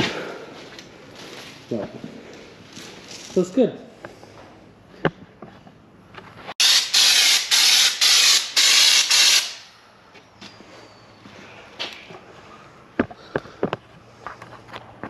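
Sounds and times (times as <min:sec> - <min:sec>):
spray gun hissing pulses: 0:06.6 - 0:09.7.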